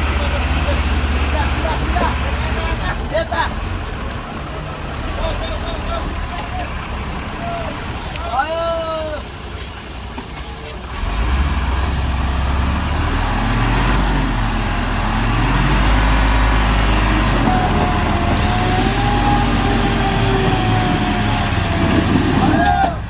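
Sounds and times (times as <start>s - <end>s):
heavy vehicle engine under load: 0.0s - 23.0s.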